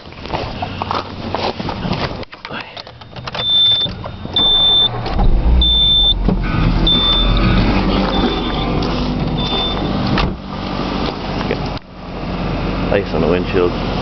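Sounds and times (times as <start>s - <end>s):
car engine starting and running: 0.2s - 14.0s
warning chime beeping: 3.4s - 10.0s.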